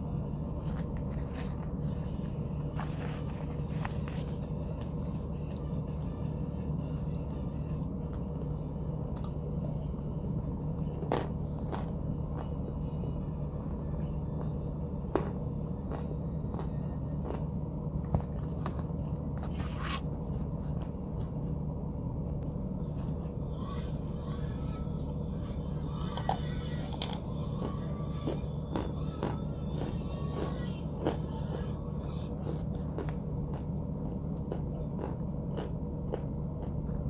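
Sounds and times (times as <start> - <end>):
steady low hum: 0.0 - 37.0
chewing crunchy chunks: 11.0 - 12.8, 14.4 - 21.3, 26.1 - 37.0.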